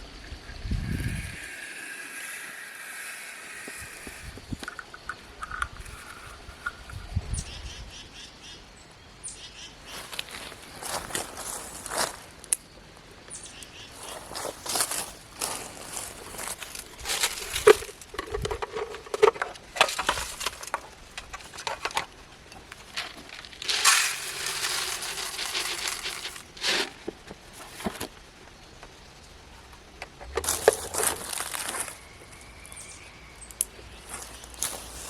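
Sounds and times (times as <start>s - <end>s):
birdseed pouring: 14.0s - 22.1s, 22.8s - 28.1s, 30.4s - 33.0s, 34.0s - 35.0s
clicks and rustling: 14.4s - 29.0s.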